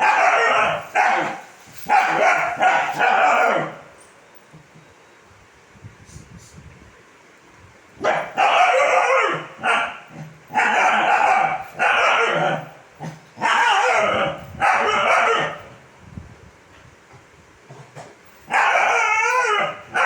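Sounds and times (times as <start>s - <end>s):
puppy barking: 0.0s - 3.8s, 8.0s - 12.8s, 13.4s - 15.7s, 18.5s - 20.0s.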